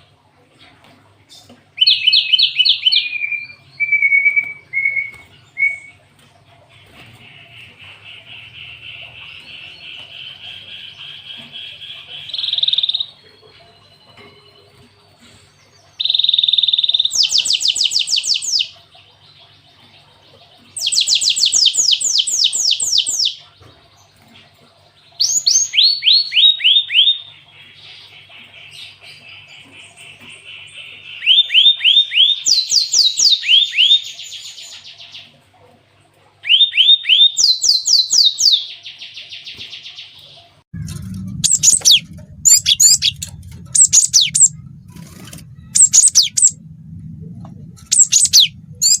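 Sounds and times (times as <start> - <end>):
bird singing trilled phrases: 1.8 - 6.1, 8.3 - 24.3, 25.1 - 35.2, 36.4 - 39.6, 40.2 - 46.6, 47.6 - 49.0
low hum: 40.7 - 49.0
sharp bird chips: 41.4 - 44.5, 45.2 - 46.6, 47.9 - 49.0.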